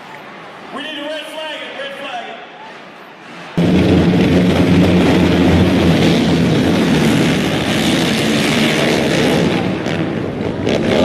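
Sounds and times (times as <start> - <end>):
loud rushing noise: 2.6 - 11.0
vehicle engine running: 3.6 - 11.0.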